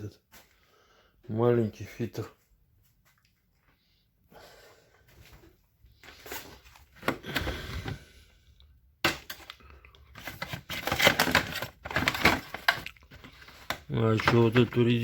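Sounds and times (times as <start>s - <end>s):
hands rummaging hard parts: 9.0s - 15.0s.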